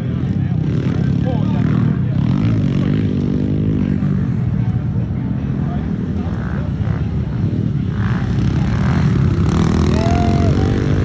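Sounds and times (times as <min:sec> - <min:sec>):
pit bike engines racing: 0:00.0 - 0:11.0.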